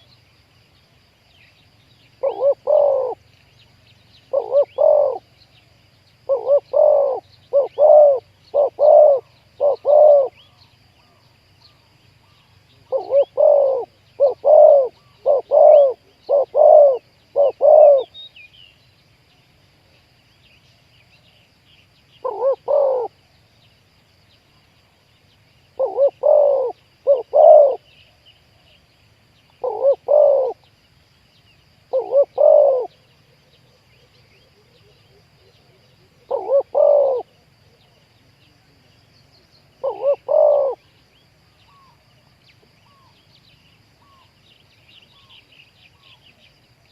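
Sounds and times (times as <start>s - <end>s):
doves cooing: 2.2s - 3.2s, 4.3s - 5.3s, 6.3s - 10.5s, 12.8s - 18.2s, 22.2s - 23.2s, 25.8s - 27.9s, 29.6s - 30.6s, 31.9s - 33.1s, 34.6s - 37.4s, 39.8s - 40.9s.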